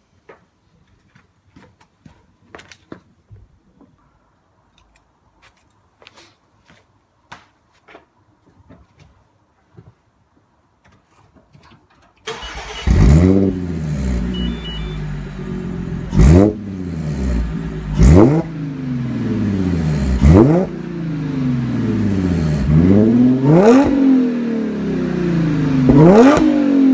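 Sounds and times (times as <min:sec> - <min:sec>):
car engine starting and revving: 0:12.3 - 0:26.9.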